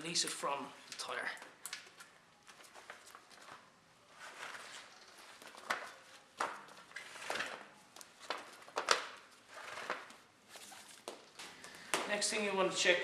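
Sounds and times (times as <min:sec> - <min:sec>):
rubber inner tube rubbing and scuffing: 0:02.0 - 0:07.6, 0:08.3 - 0:12.1.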